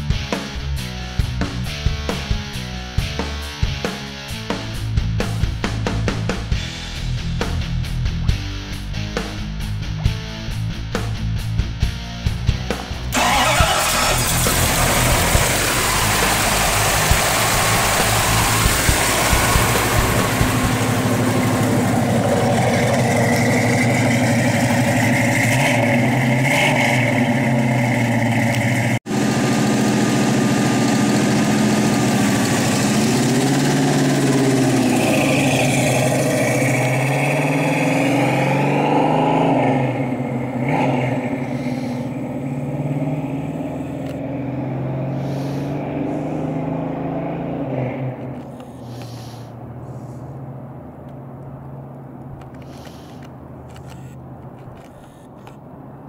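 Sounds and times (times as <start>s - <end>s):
car engine running: 4.4s - 55.5s
car driving away: 12.3s - 56.0s.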